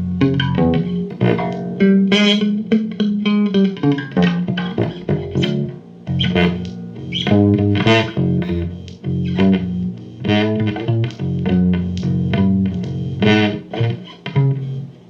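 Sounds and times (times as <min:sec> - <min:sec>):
plucked bass guitar: 0:00.0 - 0:15.0.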